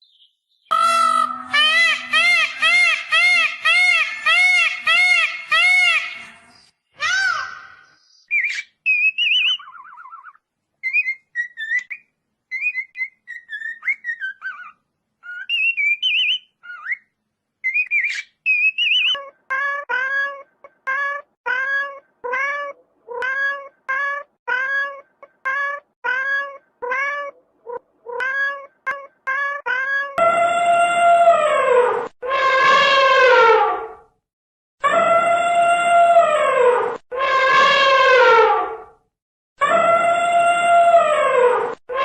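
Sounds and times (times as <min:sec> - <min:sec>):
small animal high cries: 0:00.7 - 0:06.3, 0:18.1 - 0:27.4.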